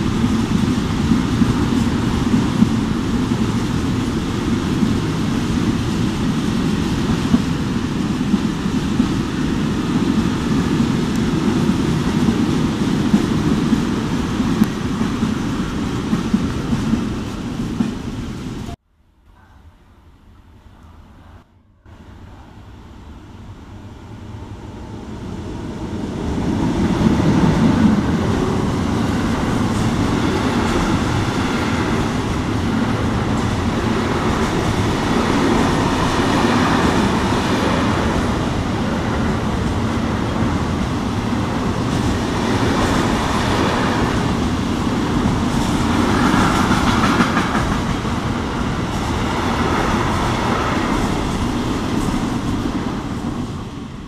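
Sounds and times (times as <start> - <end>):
freight train rumbling: 0.0 - 54.0
wheels clattering on rails: 26.5 - 53.8.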